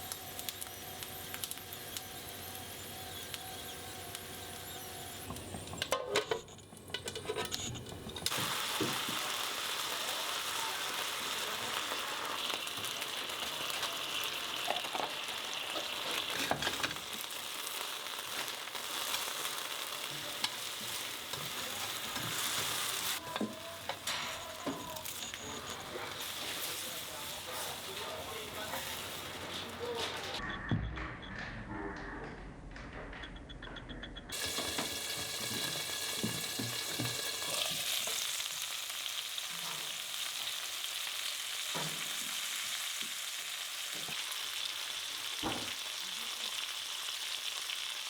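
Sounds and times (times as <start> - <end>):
slices sizzling in a frying pan: 0.0 - 5.9, 8.1 - 30.4, 34.4 - 48.0
utensils clinking: 11.6 - 17.4, 18.2 - 30.4.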